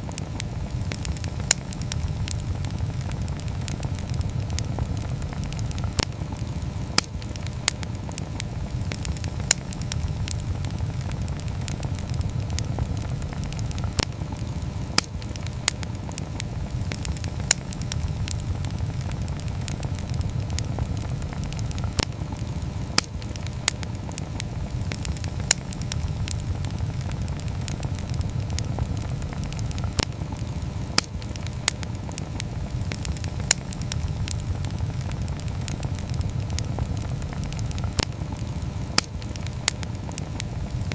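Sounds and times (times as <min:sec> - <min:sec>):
campfire crackling: 0:00.0 - 0:40.9
low rush of flame: 0:00.0 - 0:40.9.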